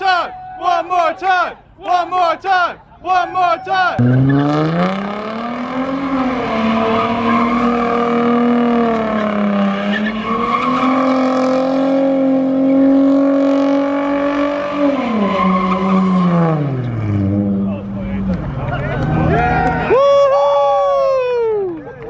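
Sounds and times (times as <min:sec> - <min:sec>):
car engine revving high: 0:04.0 - 0:17.9.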